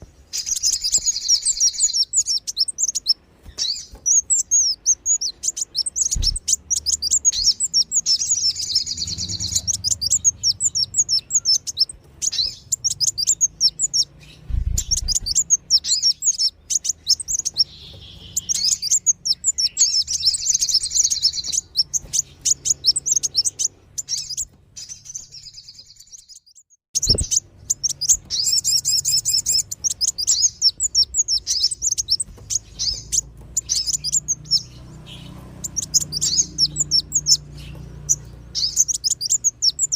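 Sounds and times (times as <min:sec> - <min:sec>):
high-pitched bird chirps: 0:00.2 - 0:39.9
dull low thumps: 0:06.0 - 0:06.6, 0:14.4 - 0:15.5.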